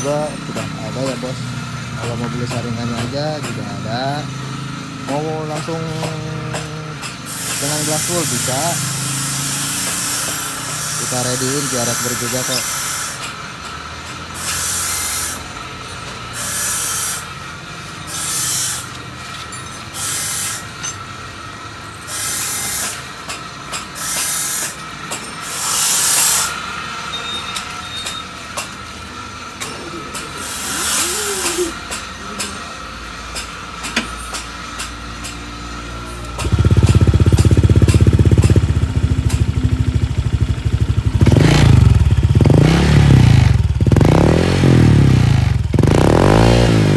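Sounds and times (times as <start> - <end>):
motorcycle engine revving: 0.0 - 20.9, 35.6 - 46.9
short hissing bursts: 7.3 - 13.2, 14.4 - 15.4, 16.4 - 17.3, 18.1 - 18.9, 22.1 - 23.0, 24.0 - 24.7, 25.4 - 26.6, 30.4 - 31.7.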